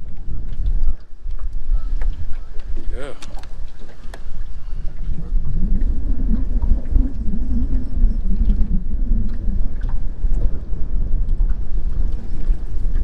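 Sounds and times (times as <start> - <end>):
wavering low hum: 0.0 - 13.0
wind buffeting microphone: 0.0 - 13.0.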